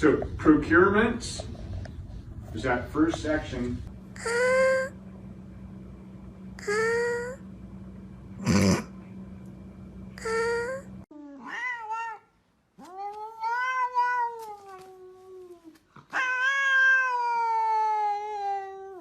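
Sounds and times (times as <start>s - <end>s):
pet animal wailing: 10.3s - 19.0s.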